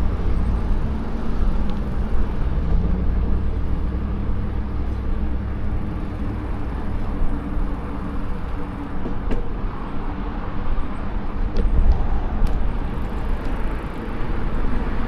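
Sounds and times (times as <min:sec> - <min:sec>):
wind buffeting microphone: 0:00.0 - 0:15.0
bicycle tyre noise: 0:11.6 - 0:15.0.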